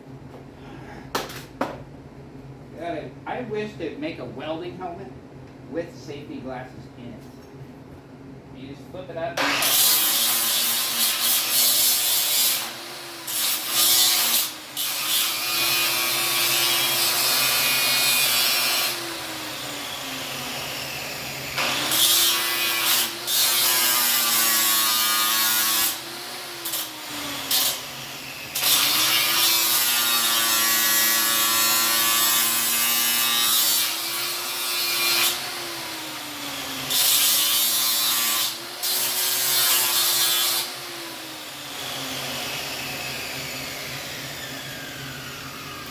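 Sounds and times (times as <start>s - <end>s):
power tool grinding metal: 9.4s - 45.9s.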